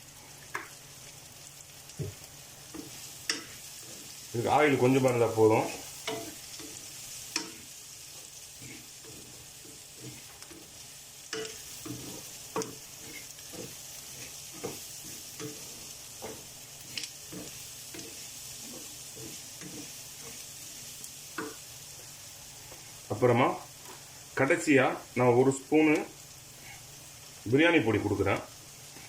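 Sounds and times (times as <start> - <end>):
food sizzling in a pan: 0.0 - 29.0
spoon scraping and knocking pan: 2.0 - 22.1.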